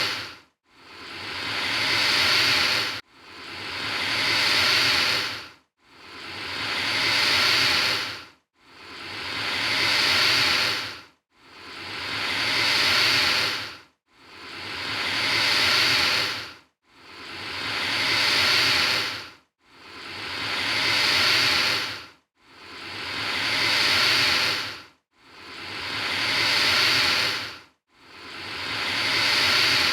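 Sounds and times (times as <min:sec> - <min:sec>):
alligator hissing: 0:00.0 - 0:00.3, 0:00.9 - 0:03.0, 0:03.6 - 0:05.4, 0:06.1 - 0:08.2, 0:08.8 - 0:11.0, 0:11.7 - 0:13.7, 0:14.4 - 0:16.5, 0:17.2 - 0:19.2, 0:19.9 - 0:22.0, 0:22.7 - 0:24.8, 0:25.4 - 0:27.5, 0:28.2 - 0:29.9.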